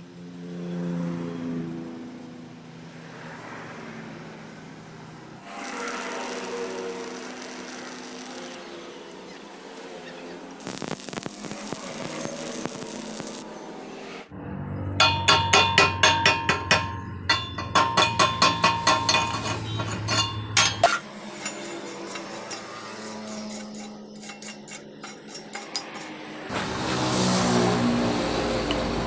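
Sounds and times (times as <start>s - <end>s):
hammer striking metal: 15.0s - 22.7s.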